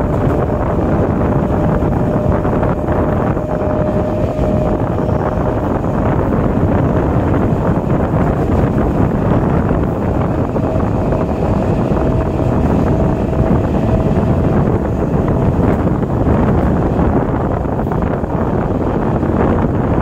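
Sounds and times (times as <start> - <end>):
train wheels rumbling on track: 0.0 - 20.0
wind buffeting microphone: 0.0 - 20.0.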